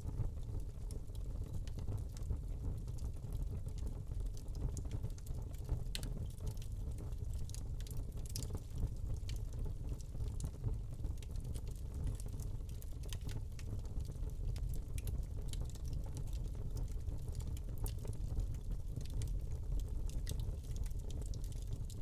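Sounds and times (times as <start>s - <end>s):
log fire crackling: 4.8s - 22.0s.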